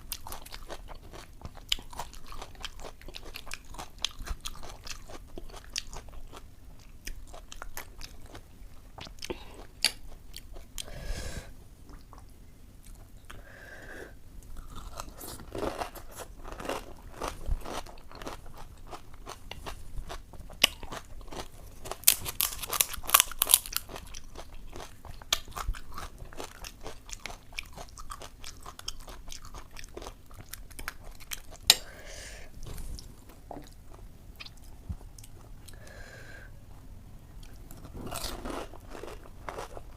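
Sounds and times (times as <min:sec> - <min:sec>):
crunching and chewing: 0:00.0 - 0:10.9, 0:14.4 - 0:31.8, 0:37.4 - 0:39.9.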